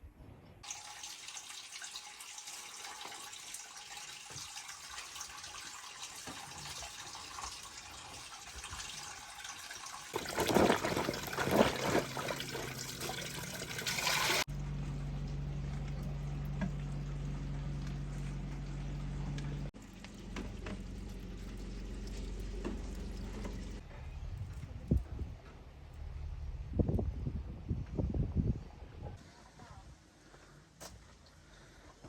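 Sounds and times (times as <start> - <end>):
water running: 0.6 - 14.5, 15.7 - 23.8
water splashing: 5.2 - 14.5.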